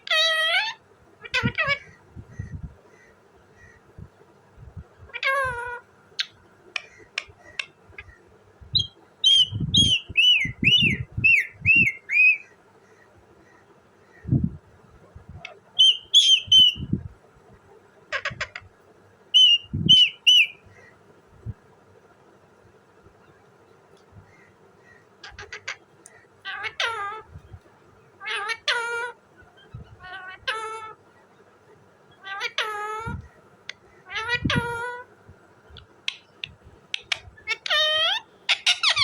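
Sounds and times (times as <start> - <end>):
parrot whistled chirps: 8.8 - 12.4, 15.8 - 16.9, 19.4 - 20.6
parrot clicks: 35.8 - 37.3.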